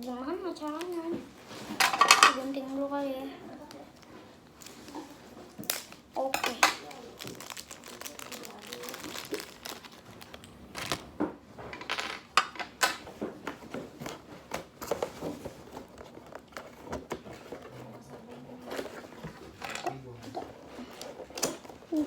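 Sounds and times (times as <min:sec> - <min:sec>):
packaging crinkling and rustling: 0:03.5 - 0:11.3, 0:13.0 - 0:22.0.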